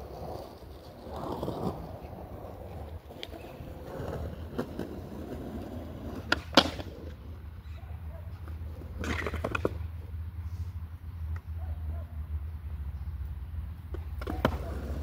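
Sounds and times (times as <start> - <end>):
skateboard rolling on hard ground: 0.0 - 7.6, 8.3 - 10.1, 13.8 - 15.0
skateboard clacks and knocks: 6.0 - 7.1, 13.9 - 15.0.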